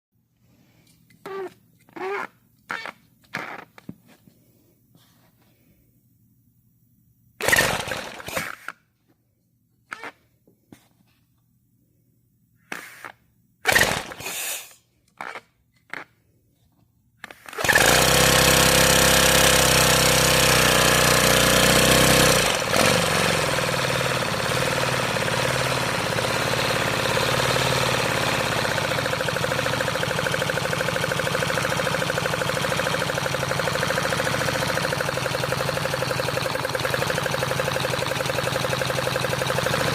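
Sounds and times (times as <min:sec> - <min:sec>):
model engine mechanical clatter: 0:07.4 - 0:08.7, 0:13.7 - 0:14.5, 0:17.2 - 0:39.9.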